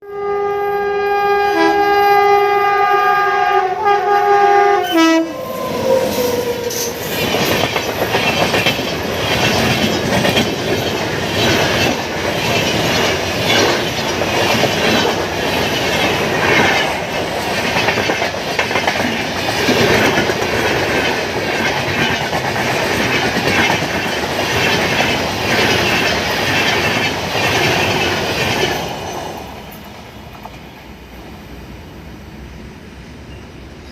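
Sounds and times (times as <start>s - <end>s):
locomotive horn: 0.0s - 7.1s
train wheels clattering over rail joints: 6.6s - 30.8s.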